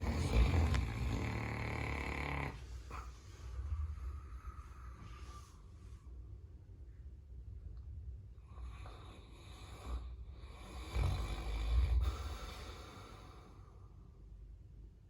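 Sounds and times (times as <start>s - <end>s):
dog snoring: 0.0s - 5.4s, 8.4s - 13.6s.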